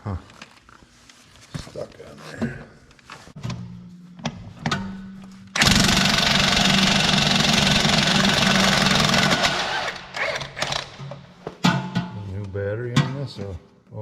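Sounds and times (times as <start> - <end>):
impact wrench hammering: 5.5 - 12.0.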